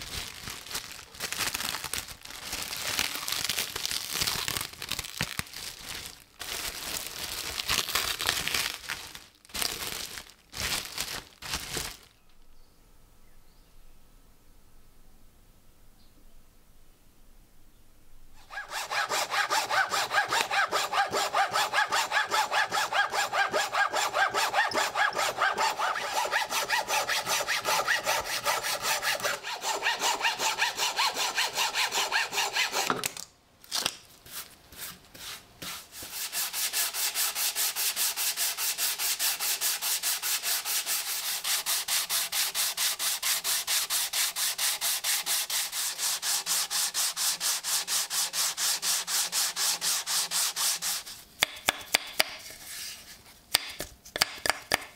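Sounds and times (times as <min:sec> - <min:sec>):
hand saw strokes on workpiece: 0:18.4 - 0:33.0, 0:34.8 - 0:54.3.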